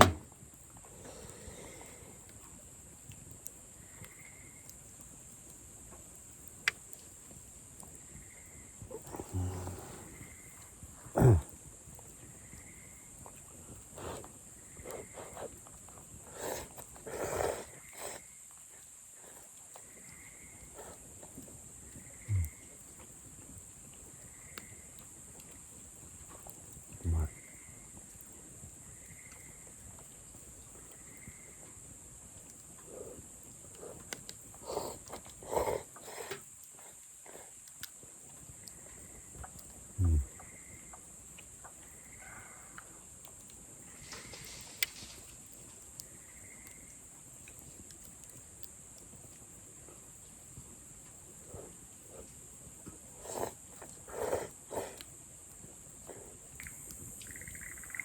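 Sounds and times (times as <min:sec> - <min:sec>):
dull low thump: 0:00.0 - 0:00.3
night insects trilling: 0:00.0 - 0:58.0
campfire crackling and popping: 0:02.2 - 0:12.4, 0:43.2 - 0:49.5
low grunt: 0:09.1 - 0:10.1, 0:11.1 - 0:11.5, 0:40.0 - 0:40.3.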